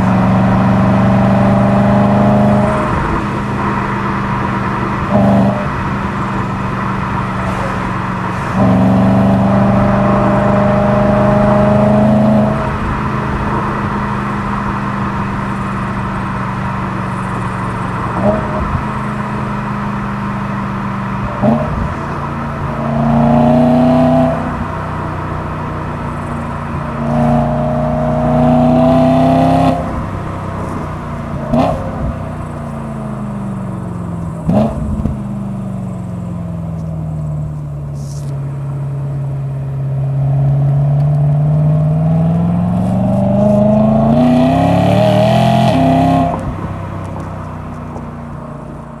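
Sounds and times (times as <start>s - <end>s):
car engine revving: 0.0s - 49.0s
exhaust cracks at gear changes: 46.3s - 48.2s.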